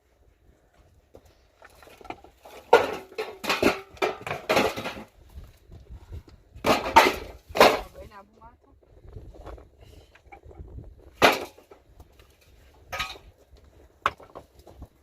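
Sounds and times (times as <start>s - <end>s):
household items clattering: 1.6s - 5.2s, 6.6s - 8.1s, 12.8s - 13.4s.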